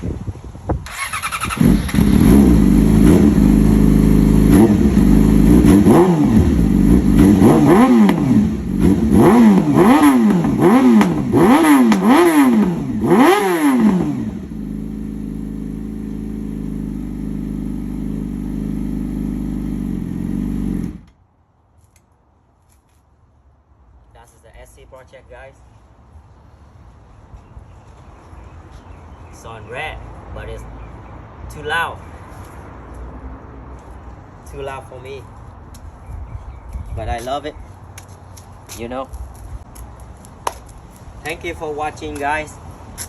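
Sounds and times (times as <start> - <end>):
motorcycle engine revving: 0.8 - 21.1
motorcycle engine idling: 14.2 - 21.0.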